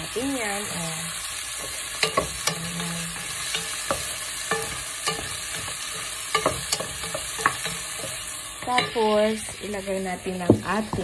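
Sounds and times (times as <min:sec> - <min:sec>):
vegetables sizzling in oil: 0:00.0 - 0:11.0
wooden spatula knocking pot: 0:01.6 - 0:09.6, 0:10.4 - 0:11.0.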